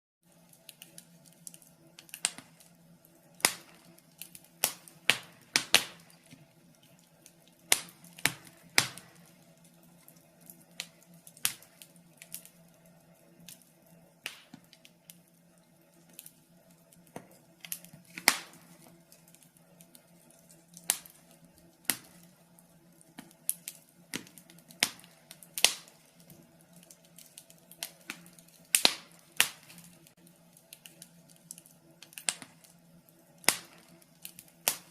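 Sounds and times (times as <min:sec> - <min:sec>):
faint steady hum: 0:00.2 - 0:34.9
wood fire crackling: 0:00.2 - 0:34.9.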